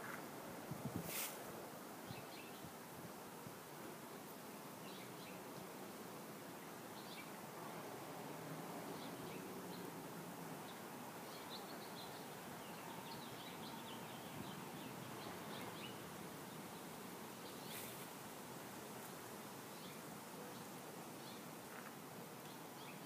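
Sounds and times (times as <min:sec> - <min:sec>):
distant birds chirping: 0:10.6 - 0:18.1.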